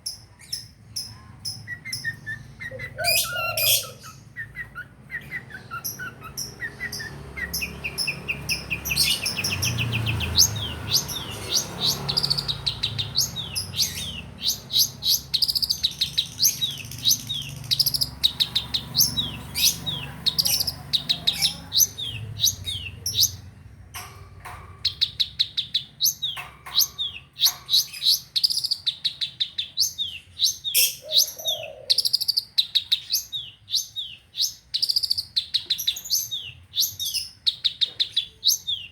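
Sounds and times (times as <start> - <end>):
bird singing sharp chirps: 0.6 - 23.5.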